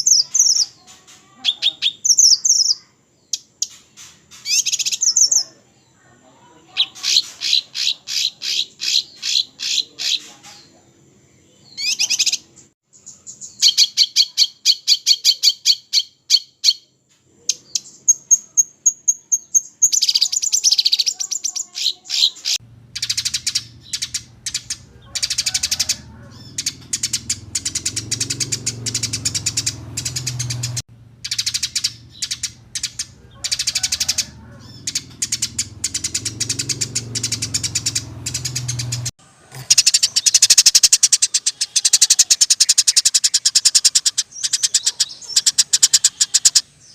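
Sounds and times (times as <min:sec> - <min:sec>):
songbirds trilling: 0:00.0 - 0:46.9
low steady hum: 0:22.6 - 0:25.2, 0:25.9 - 0:33.5.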